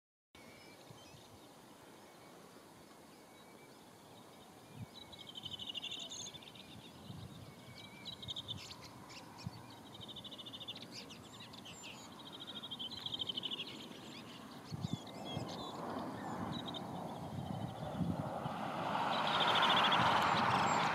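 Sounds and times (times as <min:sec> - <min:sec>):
birds trilling calls: 0:07.2 - 0:20.9
rushing noise: 0:17.8 - 0:20.9.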